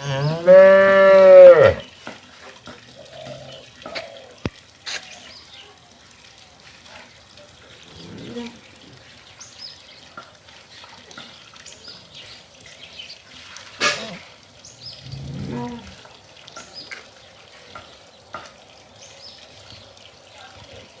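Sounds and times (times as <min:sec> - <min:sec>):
cow mooing: 0:00.0 - 0:01.8, 0:15.0 - 0:16.0.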